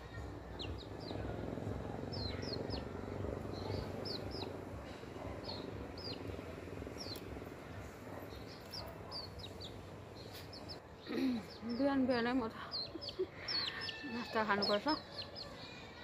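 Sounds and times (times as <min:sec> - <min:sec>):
low background rumble: 0:00.0 - 0:10.8
small birds chirping: 0:00.0 - 0:16.0.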